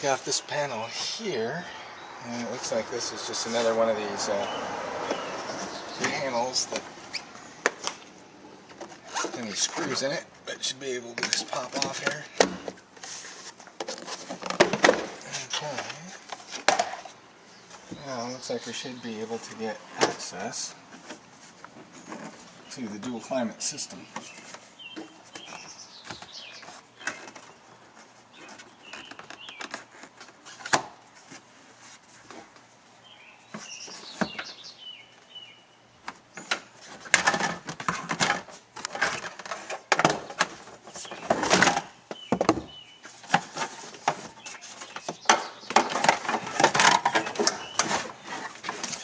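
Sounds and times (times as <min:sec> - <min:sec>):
bird chirps: 0:33.0 - 0:36.5.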